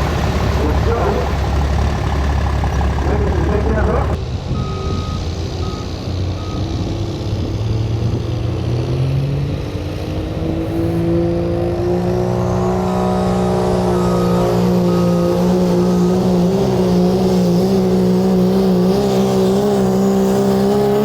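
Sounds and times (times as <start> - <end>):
diesel truck engine revving: 0.0 - 21.0
backup alarm beeping: 2.6 - 6.6, 13.9 - 16.2.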